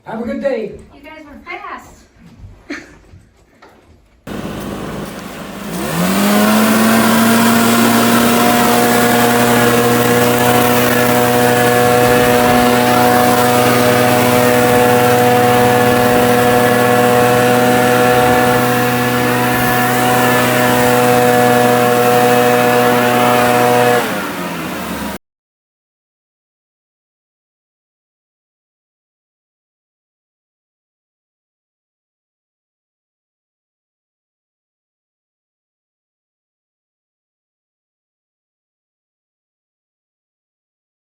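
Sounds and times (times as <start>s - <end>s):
motor running: 4.3s - 25.2s.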